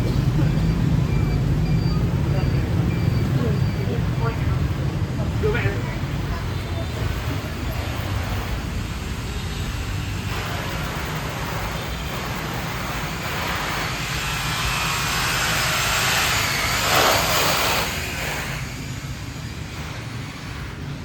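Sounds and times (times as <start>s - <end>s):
city street traffic hum: 0.0s - 21.0s.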